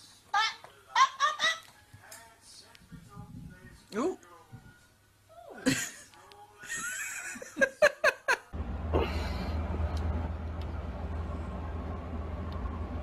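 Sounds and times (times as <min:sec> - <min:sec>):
laughter: 0:05.6 - 0:08.6
steady low rumble: 0:08.6 - 0:13.0.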